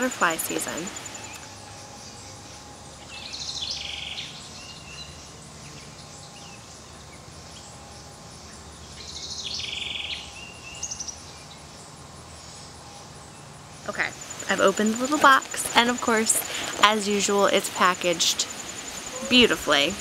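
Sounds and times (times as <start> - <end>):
faint low hum: 0.0 - 20.0
songbird trilling: 14.1 - 20.0.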